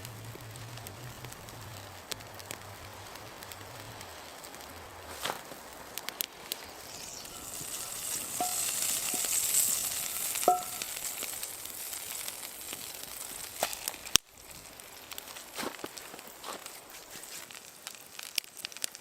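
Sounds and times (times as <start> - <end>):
food sizzling in a pan: 4.2 - 19.0
metallic clinks: 7.4 - 9.5, 10.4 - 11.0.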